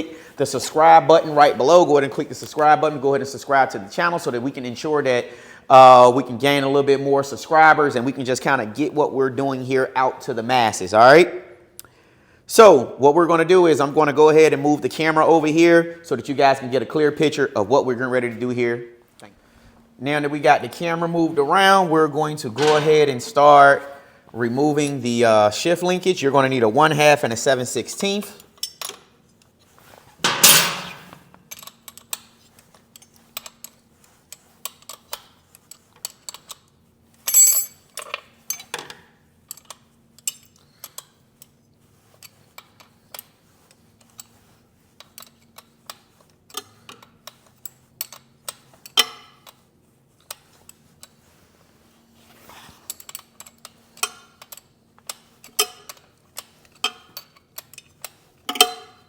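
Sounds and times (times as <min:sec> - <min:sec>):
wrenches clinking on bolts: 0:22.6 - 0:23.1, 0:30.2 - 0:32.3, 0:37.2 - 0:38.9, 0:52.9 - 0:59.0
metal clatter: 0:30.2 - 0:31.2.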